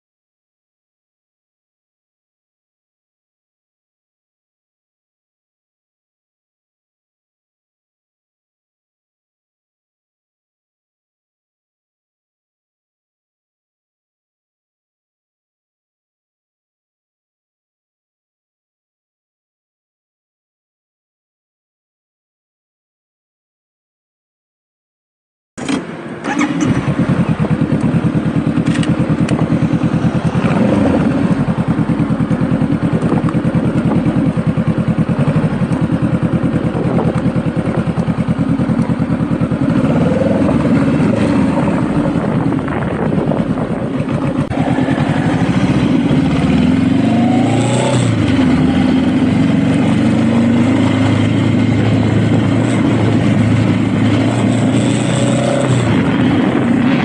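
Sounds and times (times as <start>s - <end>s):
motorcycle engine revving: 25.6s - 57.0s.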